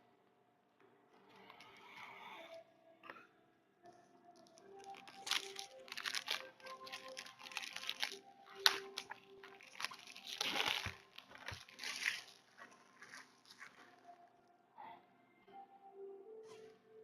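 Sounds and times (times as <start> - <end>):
soft background music: 0.0 - 17.0
packaging crinkling and rustling: 4.4 - 14.2.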